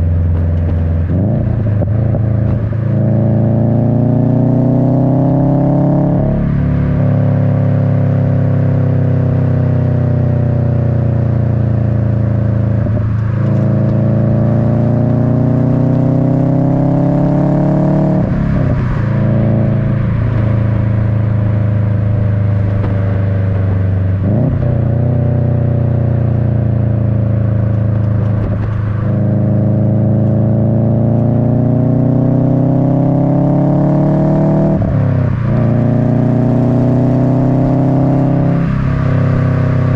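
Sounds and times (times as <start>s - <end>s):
car engine revving through exhaust: 0.0s - 39.9s.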